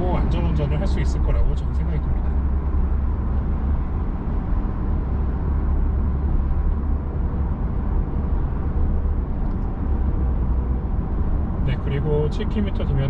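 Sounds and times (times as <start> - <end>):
car engine drone: 0.0 - 13.0
tyre and road noise: 0.0 - 13.0.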